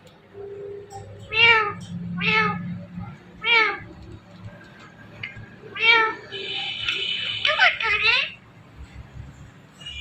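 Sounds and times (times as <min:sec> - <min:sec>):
parrot mimicking cat meow: 0:01.2 - 0:02.8, 0:03.4 - 0:03.9, 0:05.7 - 0:06.3, 0:07.4 - 0:08.4.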